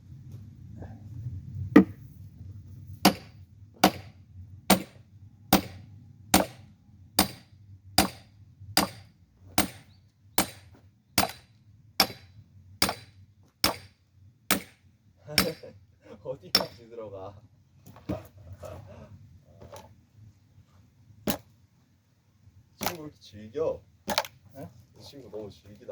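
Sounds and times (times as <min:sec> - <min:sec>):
hammer striking a wedge: 0:01.8 - 0:02.0, 0:03.0 - 0:04.1, 0:04.7 - 0:06.6, 0:07.2 - 0:13.9, 0:14.5 - 0:14.8, 0:15.4 - 0:15.7, 0:16.5 - 0:16.8.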